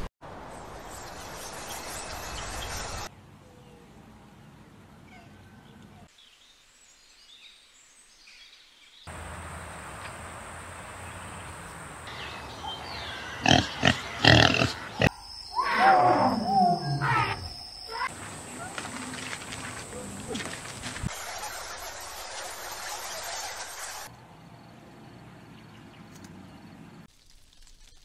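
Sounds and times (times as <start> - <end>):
outdoor background sound: 0.0 - 28.0
pigs grunting: 13.4 - 15.1.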